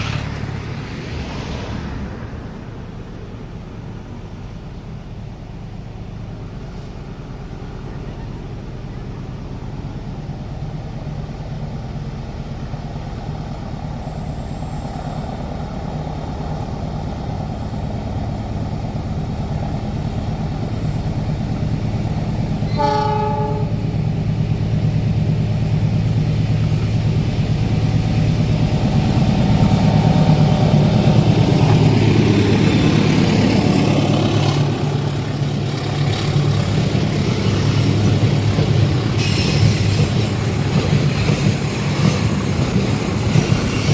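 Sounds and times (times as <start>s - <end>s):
diesel locomotive engine: 0.0s - 43.9s
train wheel noise: 0.0s - 43.9s
train horn blast: 22.7s - 23.8s.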